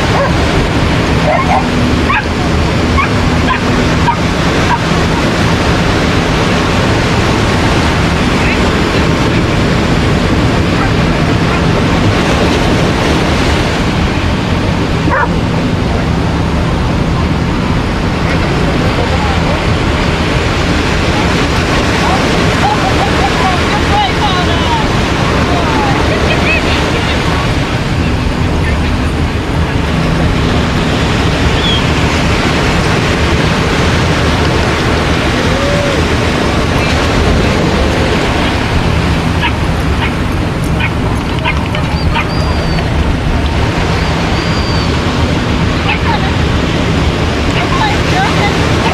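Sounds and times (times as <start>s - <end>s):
ocean surf rushing: 0.0s - 48.9s
dog yipping: 1.3s - 2.3s, 3.0s - 4.8s, 15.1s - 15.3s, 39.4s - 40.2s, 40.8s - 42.9s.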